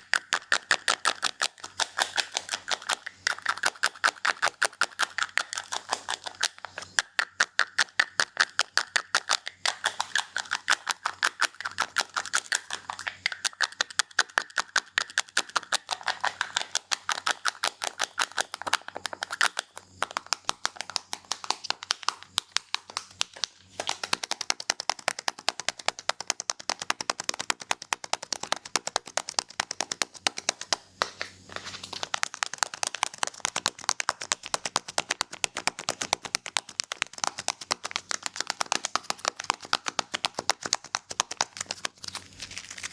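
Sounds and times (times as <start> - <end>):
scissors snipping: 27.7 - 42.9.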